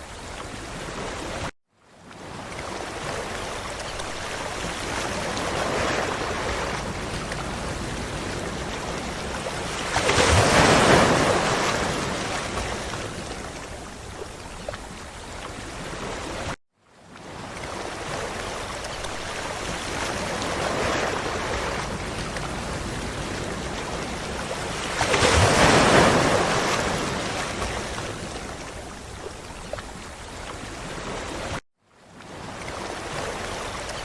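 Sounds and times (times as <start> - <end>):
ocean waves on beach: 0.0 - 34.0
wave breaking: 2.3 - 13.9, 17.4 - 28.8.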